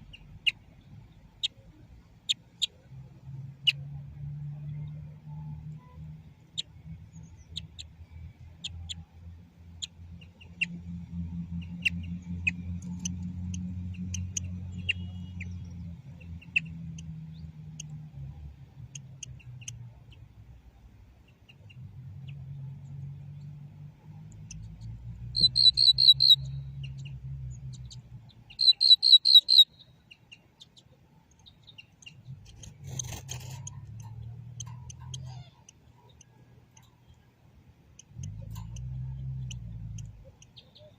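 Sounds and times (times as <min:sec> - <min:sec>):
goldfinch twittering song: 0:24.3 - 0:37.2
brief rustle: 0:32.4 - 0:34.0.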